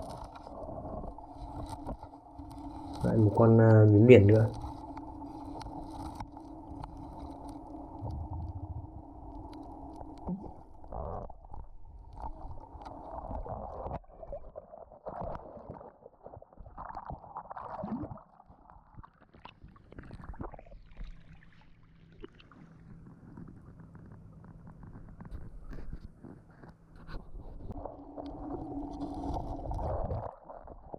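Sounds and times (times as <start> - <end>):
bubbles gurgling: 7.9 - 11.5, 16.6 - 18.5.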